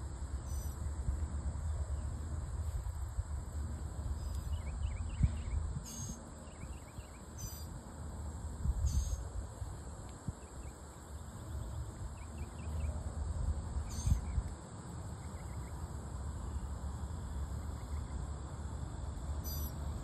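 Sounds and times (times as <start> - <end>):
wind rumble on microphone: 0.0 - 7.5, 8.2 - 14.6
steady high hum: 0.0 - 20.0
faint high chirps: 4.2 - 7.7, 13.8 - 14.5, 19.4 - 19.9
harsh bird calls: 13.8 - 14.4, 19.4 - 19.8.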